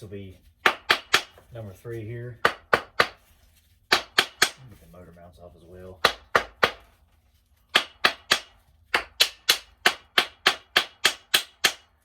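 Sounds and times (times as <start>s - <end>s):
tool tapping steel parts: 0.6s - 1.5s, 7.7s - 12.0s.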